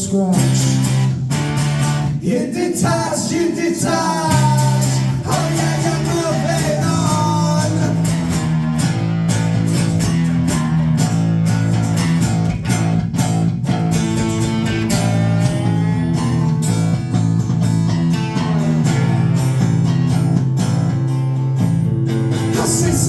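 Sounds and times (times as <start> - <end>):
strummed electric guitars: 0.0 - 23.0
percussion beat: 4.2 - 23.0
low bass notes: 4.3 - 23.0.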